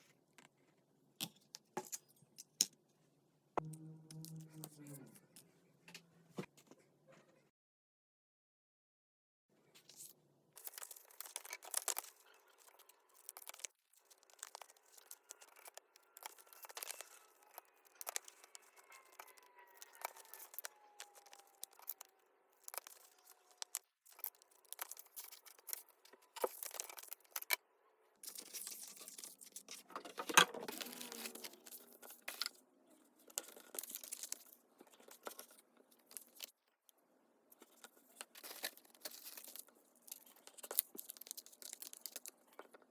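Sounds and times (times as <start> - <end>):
paper rustling and crinkling: 9.8 - 27.6, 28.2 - 36.6, 37.5 - 42.9
paper tearing: 30.6 - 32.4.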